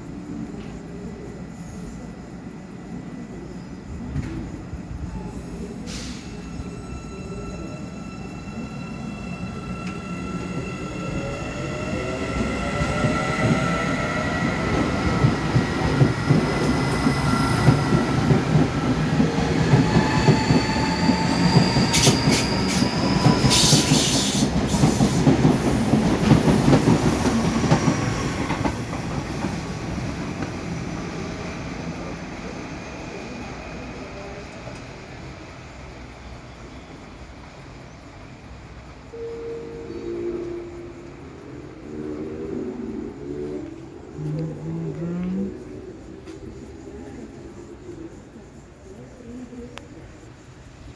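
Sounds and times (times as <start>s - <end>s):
rumble of wheels on track: 0.0s - 50.9s
train wheels squealing: 4.2s - 41.6s.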